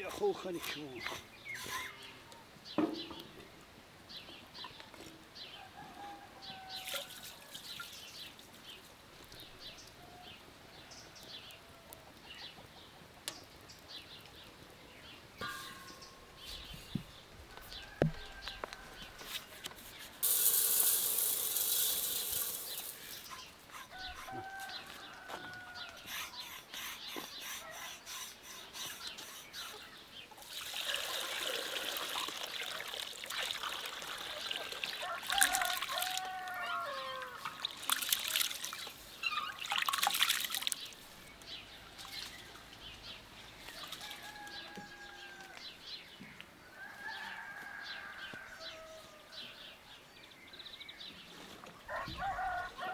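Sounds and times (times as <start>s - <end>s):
chickens calling: 0.0s - 3.3s, 15.2s - 49.6s, 51.2s - 52.9s
water splashing and pouring: 30.4s - 41.1s.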